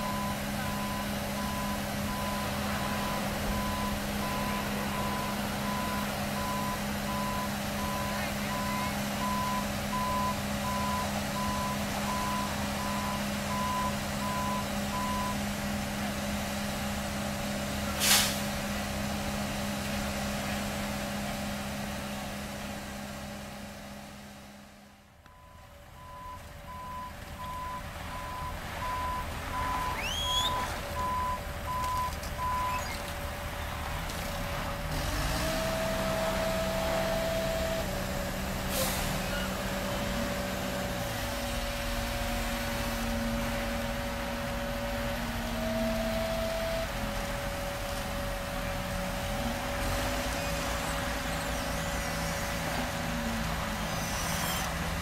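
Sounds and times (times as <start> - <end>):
reversing alarm beeping: 0.0 - 15.4, 25.3 - 32.9
machinery engine running: 0.0 - 24.9, 26.7 - 55.0.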